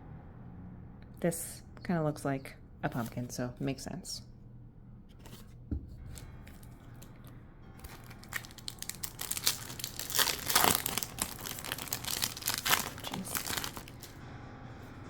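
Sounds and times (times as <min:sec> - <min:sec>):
foil wrapper crinkling: 0:06.1 - 0:14.2.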